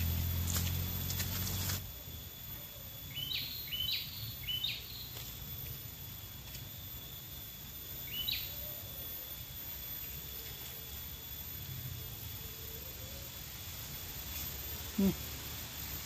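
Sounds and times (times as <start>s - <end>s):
low outdoor rumble: 0.0s - 3.6s
thin high whine: 0.0s - 16.0s
bird chirping: 3.1s - 5.1s, 8.0s - 8.6s.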